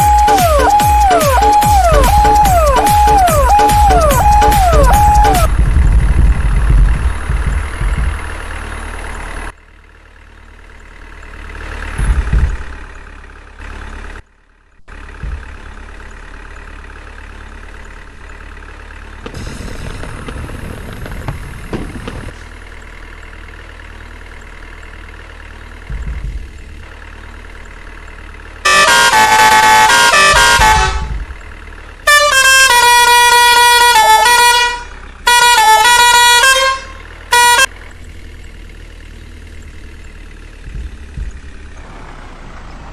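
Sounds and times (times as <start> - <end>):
musical air horn blasts: 0.0 - 5.5, 28.6 - 31.2, 32.0 - 37.7
truck engine rumbling: 0.0 - 42.9.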